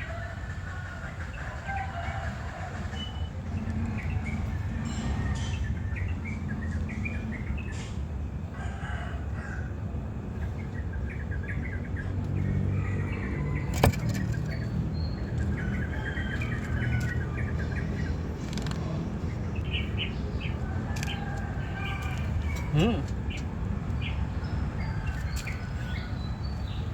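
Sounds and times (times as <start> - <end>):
small birds chirping: 10.3 - 26.9.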